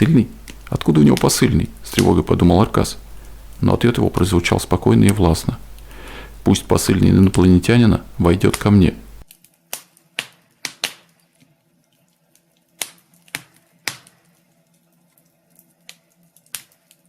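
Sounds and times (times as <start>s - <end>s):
faint steady hum: 0.0s - 9.3s
wood fire crackling and popping: 0.0s - 17.0s.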